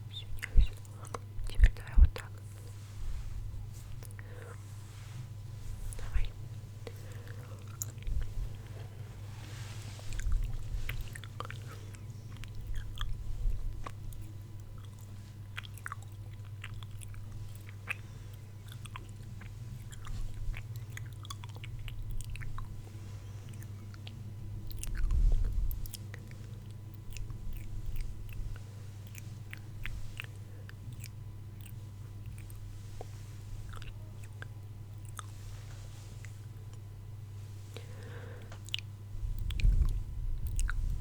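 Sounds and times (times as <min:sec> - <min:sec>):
steady low hum: 0:00.0 - 0:41.0
soft low thumps: 0:39.2 - 0:41.0.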